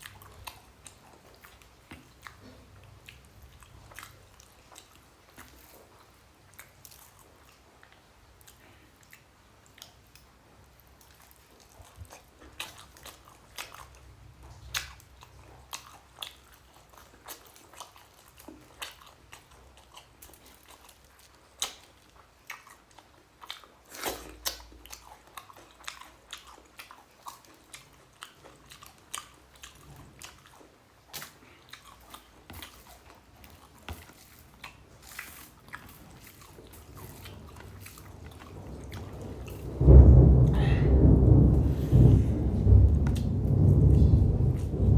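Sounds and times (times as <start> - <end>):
person chewing with mouth smacks: 0.0 - 39.7.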